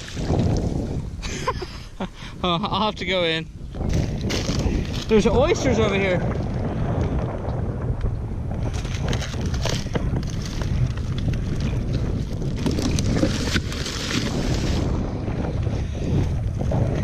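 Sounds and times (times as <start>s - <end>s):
strong wind buffeting microphone: 0.0s - 17.0s
crackles and rustles: 3.8s - 17.0s.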